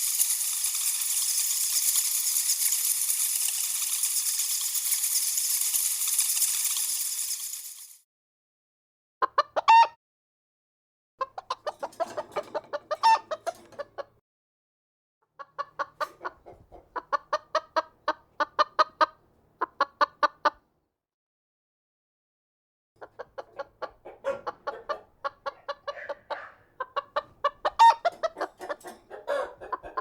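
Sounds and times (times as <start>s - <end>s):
chicken clucking: 9.2s - 10.0s, 11.2s - 14.2s, 15.4s - 20.6s, 23.0s - 30.0s.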